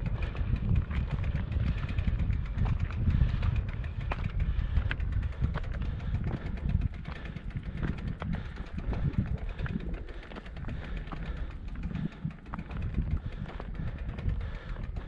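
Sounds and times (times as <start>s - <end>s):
wind buffeting microphone: 0.0s - 15.0s
footsteps on stony path: 0.2s - 6.5s.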